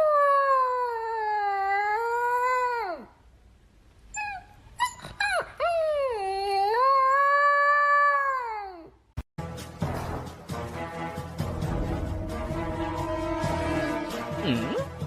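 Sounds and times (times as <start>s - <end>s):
dog yipping: 4.1s - 7.1s
music: 9.4s - 15.0s.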